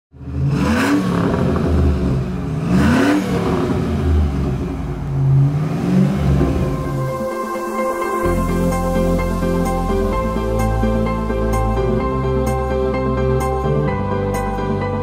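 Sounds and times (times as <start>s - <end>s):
car engine running steadily: 0.1s - 7.2s
car engine revving: 0.1s - 14.9s.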